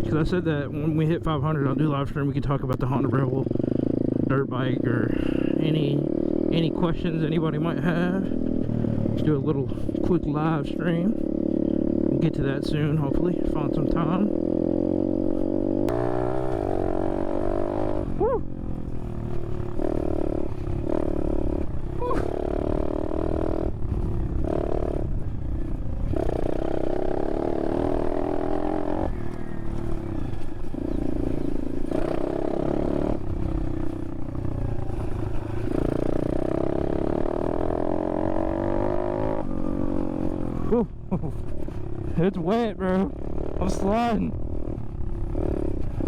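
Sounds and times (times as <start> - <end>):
motorbike engine revving: 3.0 - 46.0
rider shouting: 18.1 - 18.5, 21.9 - 22.6.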